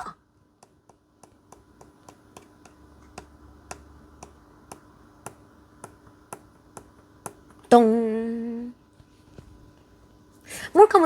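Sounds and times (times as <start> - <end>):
low steady hum: 0.0 - 11.0
faint regular clicking: 0.6 - 7.7.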